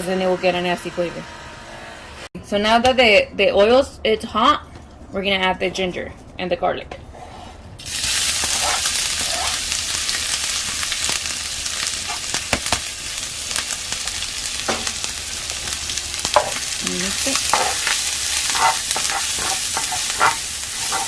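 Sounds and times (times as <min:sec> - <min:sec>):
food sizzling in hot oil: 0:07.8 - 0:21.0.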